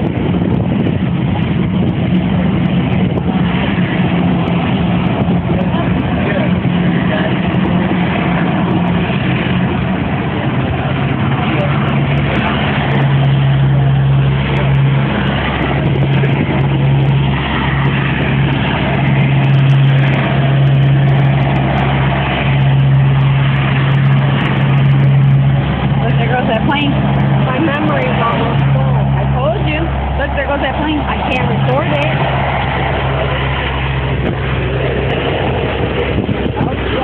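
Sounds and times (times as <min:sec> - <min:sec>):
aircraft engine running: 0:00.0 - 0:37.0.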